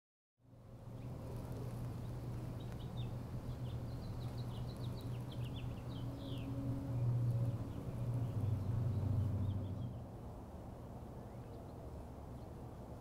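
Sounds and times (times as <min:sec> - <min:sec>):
low outdoor ambience hum: 0:00.4 - 0:13.0
small birds chirping: 0:00.8 - 0:10.1.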